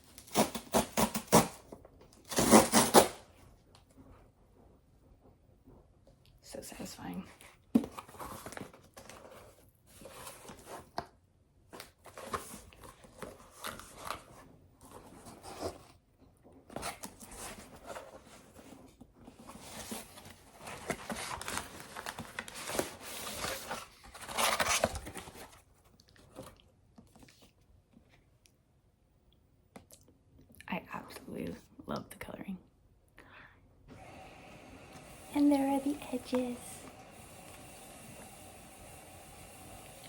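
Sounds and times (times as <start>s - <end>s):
packaging rustling and tearing: 0.0s - 3.3s, 7.8s - 11.1s, 11.7s - 16.0s, 16.7s - 27.5s.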